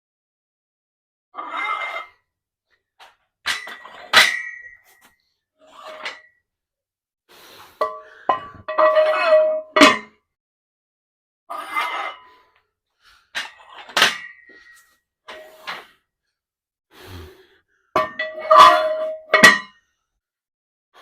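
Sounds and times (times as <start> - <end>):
weight plates clanking: 7.8 - 10.1, 18.0 - 19.6.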